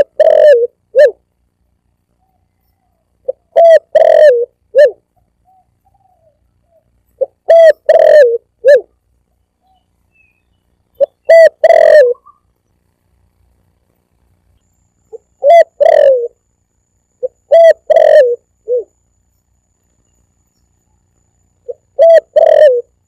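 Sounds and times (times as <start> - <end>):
dove cooing: 0.0 - 1.2, 2.3 - 8.9, 11.0 - 12.4, 15.1 - 16.4, 17.2 - 19.0, 21.6 - 23.0.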